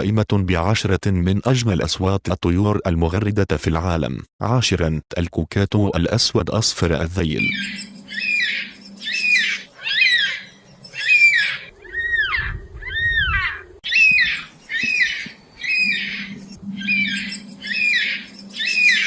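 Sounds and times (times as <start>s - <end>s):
cockatoo calling: 7.4s - 19.0s.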